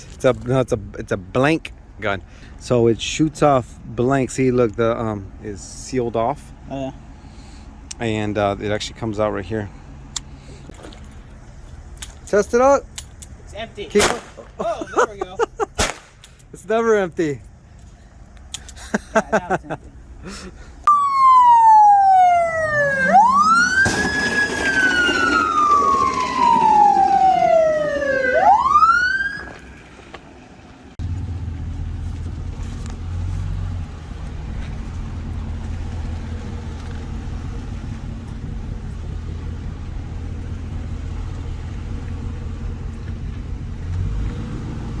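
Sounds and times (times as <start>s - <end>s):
police car siren wailing: 20.9s - 30.0s
steady low rumble: 29.6s - 43.9s.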